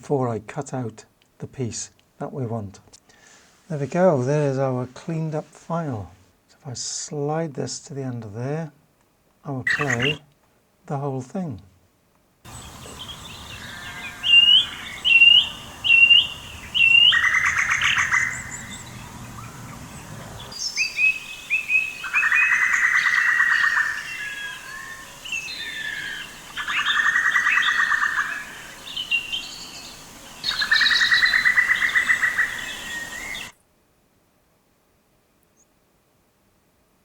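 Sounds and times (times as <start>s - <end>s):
buzzy pulsed bird call: 9.7s - 10.2s, 12.5s - 29.6s
short rising bird chirps: 12.5s - 33.5s.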